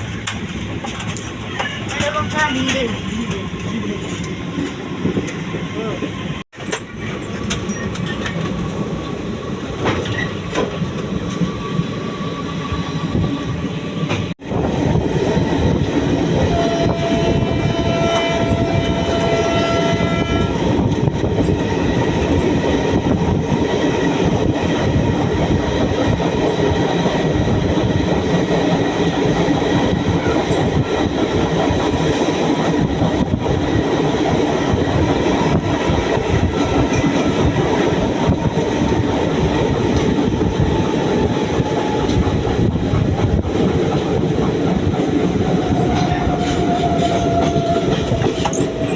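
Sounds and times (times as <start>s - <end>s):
train wheels rumbling on track: 0.0s - 48.9s
train horn: 16.4s - 20.8s, 45.7s - 48.2s.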